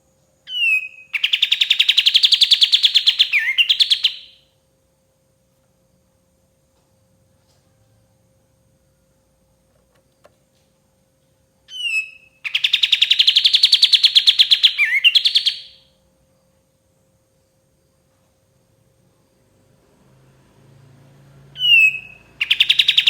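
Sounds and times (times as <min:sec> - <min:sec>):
bulbul singing a trill: 0:00.4 - 0:04.5, 0:11.7 - 0:15.9, 0:21.6 - 0:23.0.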